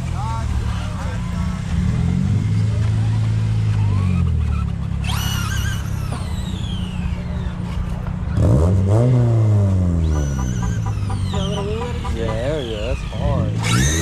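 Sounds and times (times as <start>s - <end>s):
car engine revving: 0.0s - 14.0s
electric motor whine: 13.5s - 14.0s.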